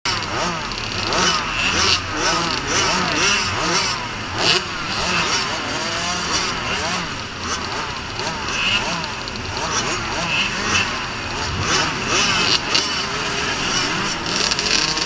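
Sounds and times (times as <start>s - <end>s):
dirt bike engines revving: 0.1s - 15.0s.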